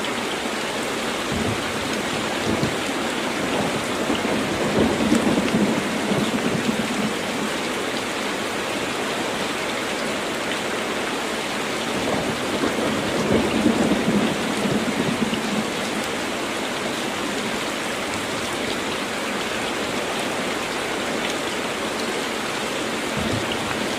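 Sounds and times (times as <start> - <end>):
heavy rain: 0.0 - 23.9
low rolls of thunder: 3.4 - 7.4, 12.0 - 16.0.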